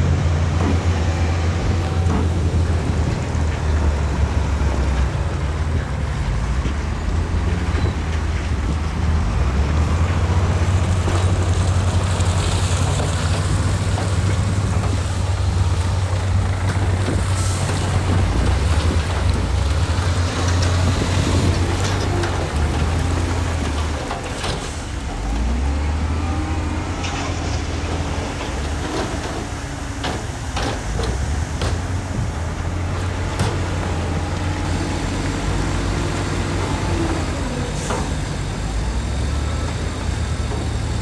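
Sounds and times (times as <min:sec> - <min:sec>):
heavy diesel engine droning: 0:00.0 - 0:41.0
knocks and rattles: 0:26.9 - 0:39.1.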